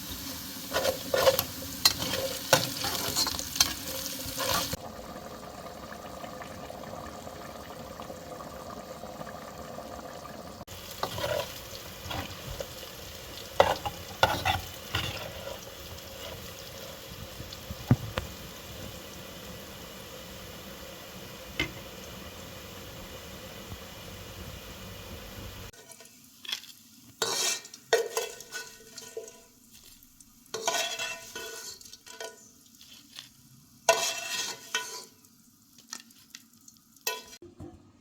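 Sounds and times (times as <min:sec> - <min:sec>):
food sizzling in a pot: 0:00.0 - 0:37.4
utensil scraping a pot: 0:00.6 - 0:04.8, 0:10.7 - 0:12.9, 0:13.5 - 0:16.9, 0:25.7 - 0:29.5, 0:30.5 - 0:33.3, 0:33.9 - 0:35.2.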